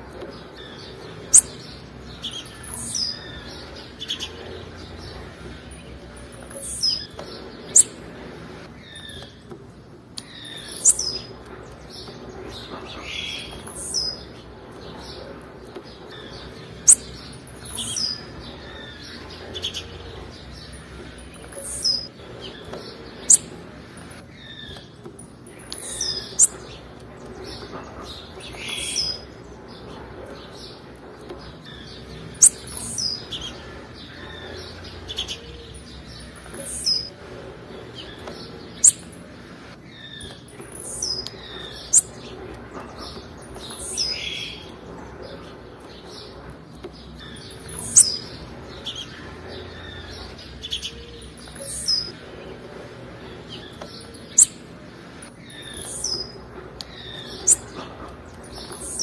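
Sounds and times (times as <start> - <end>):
bird chirping: 0.0 - 59.0.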